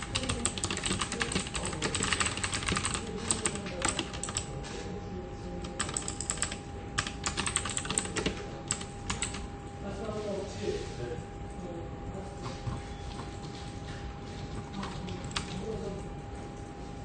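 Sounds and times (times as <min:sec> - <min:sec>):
typing on computer keyboard: 0:00.0 - 0:04.6, 0:05.6 - 0:09.5, 0:14.7 - 0:15.6.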